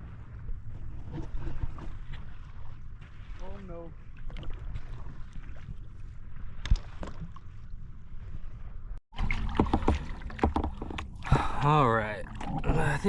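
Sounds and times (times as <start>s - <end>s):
water splashing around kayak: 0.0s - 13.0s
small knocks: 9.6s - 11.1s.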